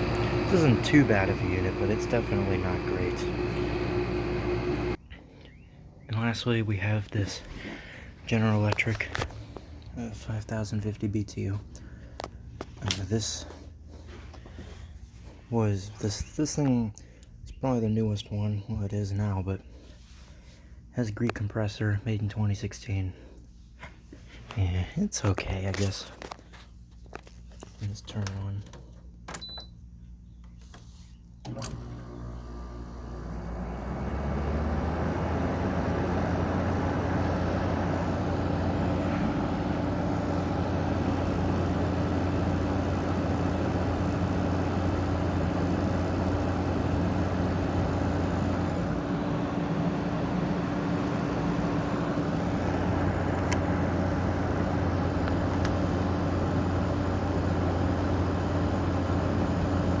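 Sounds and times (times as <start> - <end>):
air conditioner running hum: 0.0 - 60.0
air conditioner click: 28.1 - 29.8, 31.4 - 32.4, 38.8 - 57.4.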